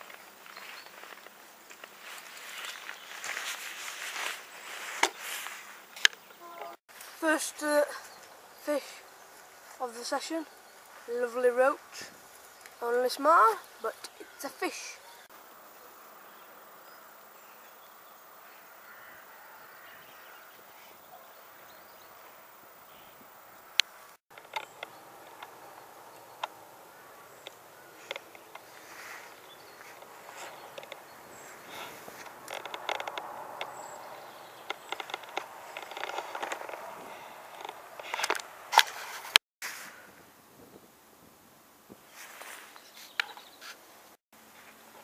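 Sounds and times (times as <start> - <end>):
low outdoor hiss: 0.0 - 35.8, 36.6 - 45.0
handling clicks and rustling: 27.4 - 39.4.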